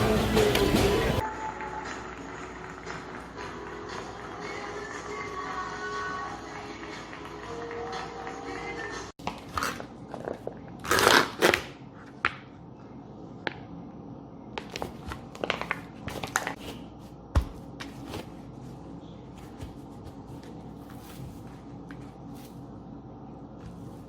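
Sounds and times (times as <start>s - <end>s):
crinkling: 14.6s - 16.9s.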